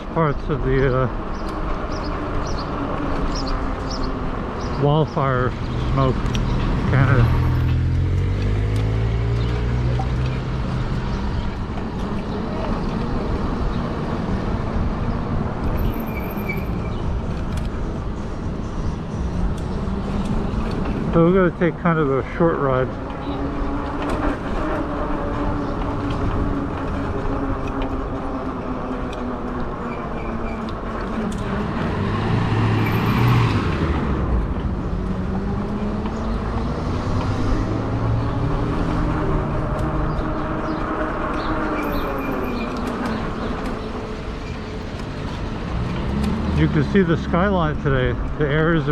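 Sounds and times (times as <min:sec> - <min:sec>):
road traffic noise: 0:00.0 - 0:48.9
vehicle engine hum: 0:00.0 - 0:48.9
bike tyre noise: 0:18.3 - 0:46.8.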